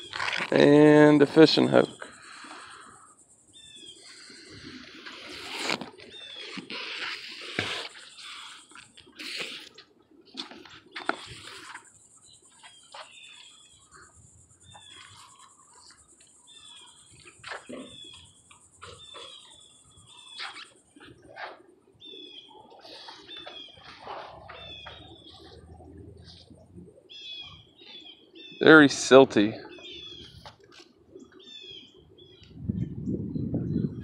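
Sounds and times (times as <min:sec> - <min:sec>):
high-pitched hiss: 0:00.0 - 0:09.9
small bird chirping: 0:01.8 - 0:09.8, 0:10.6 - 0:28.8, 0:29.6 - 0:30.6, 0:31.2 - 0:32.7.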